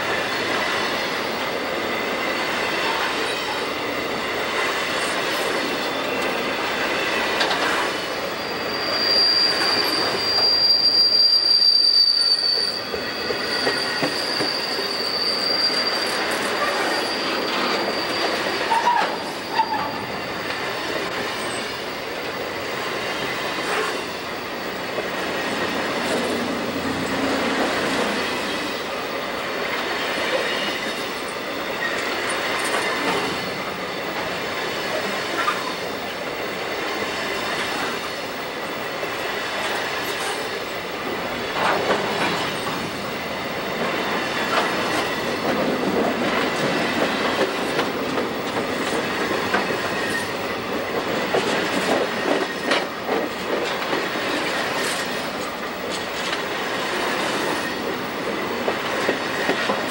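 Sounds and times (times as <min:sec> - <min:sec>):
steel wheels clattering over rails: 0:04.2 - 0:08.2, 0:41.2 - 0:59.9
thin wheel squeal: 0:07.0 - 0:20.2, 0:30.0 - 0:32.0.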